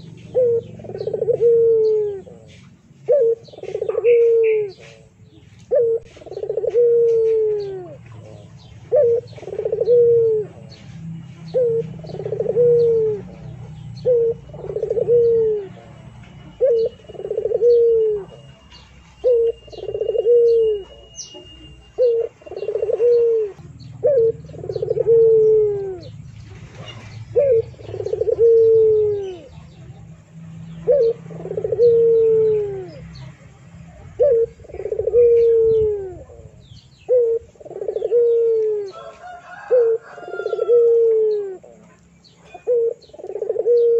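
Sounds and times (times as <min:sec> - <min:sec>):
faint higher chirps: 0:07.5 - 0:33.3.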